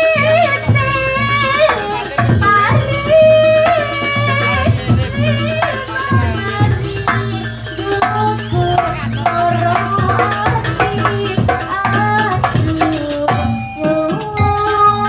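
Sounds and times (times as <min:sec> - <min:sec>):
ringing melodic notes: 0:13.1 - 0:15.0.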